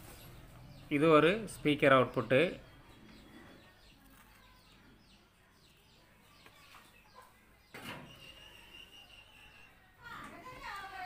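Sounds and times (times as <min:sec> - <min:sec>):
faint bird chirps: 0:02.5 - 0:10.8.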